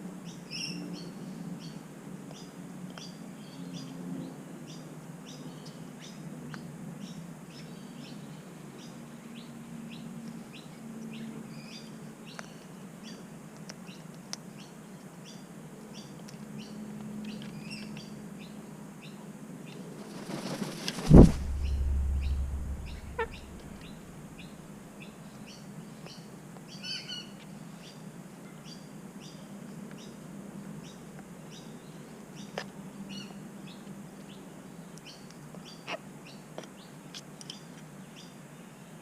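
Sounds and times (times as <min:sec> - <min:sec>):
steady low hum: 0:19.9 - 0:25.0
bird chirping: 0:20.1 - 0:24.6.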